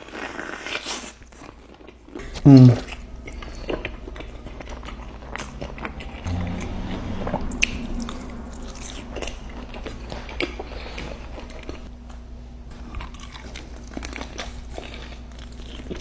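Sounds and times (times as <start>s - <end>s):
chewing crispy chicken: 0.0s - 6.3s, 8.7s - 16.0s
wet mouth sounds: 2.2s - 3.1s.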